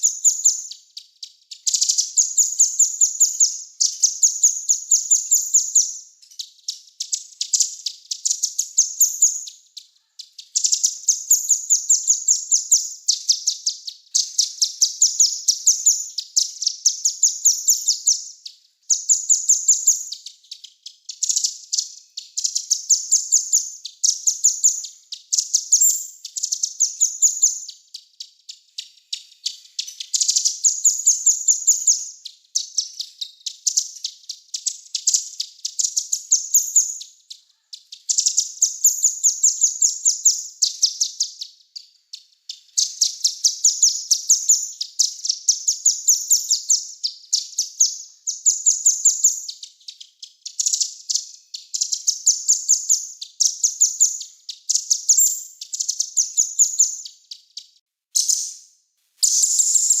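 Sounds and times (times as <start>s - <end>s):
songbird singing: 0.0s - 60.0s.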